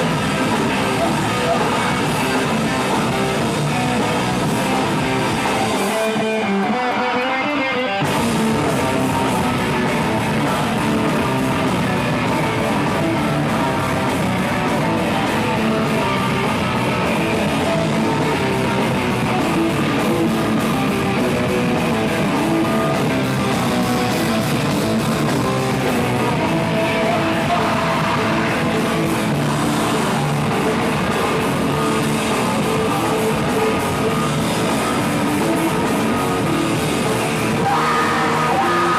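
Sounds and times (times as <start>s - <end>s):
guitar: 0.0s - 38.9s
rock band playing: 0.0s - 38.9s
person singing: 25.4s - 38.9s.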